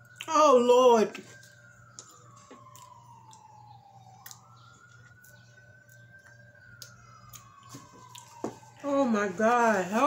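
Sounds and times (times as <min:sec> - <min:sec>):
faint siren wailing: 0:00.0 - 0:10.0.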